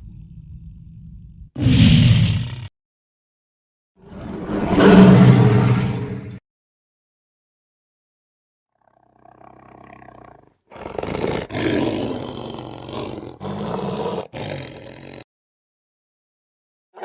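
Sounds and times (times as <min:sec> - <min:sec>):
big cat growling: 0:08.8 - 0:15.3
big cat roaring: 0:08.8 - 0:15.3.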